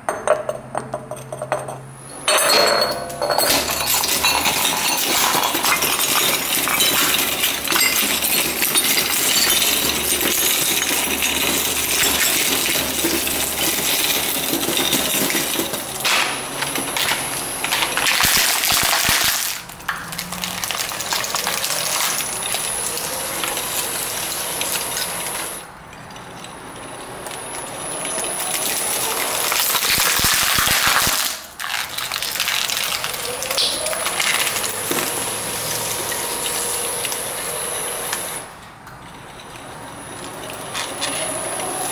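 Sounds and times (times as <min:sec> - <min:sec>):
ceramic shards clinking on steel: 0:02.2 - 0:13.7
shredder crushing ceramic: 0:03.4 - 0:25.6, 0:28.0 - 0:38.5
shredder running: 0:03.5 - 0:25.7, 0:27.3 - 0:38.5, 0:40.1 - 0:41.9.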